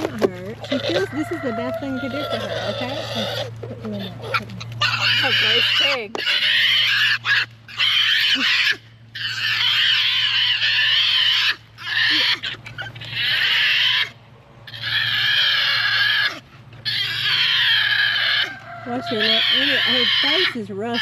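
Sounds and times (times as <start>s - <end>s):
pig squealing: 0.0s - 21.0s.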